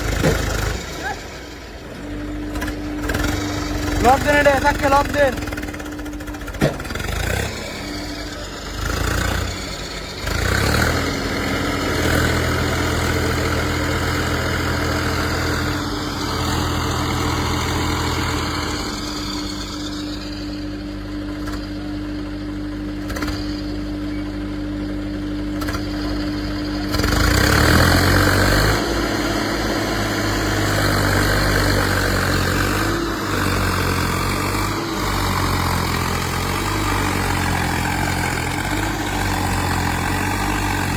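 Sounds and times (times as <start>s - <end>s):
diesel engine running and revving: 0.0s - 40.9s.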